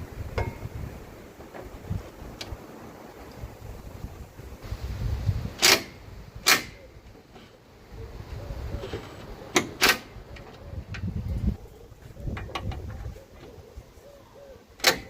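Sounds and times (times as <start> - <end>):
compressed air blow gun blasts: 4.6 - 6.9.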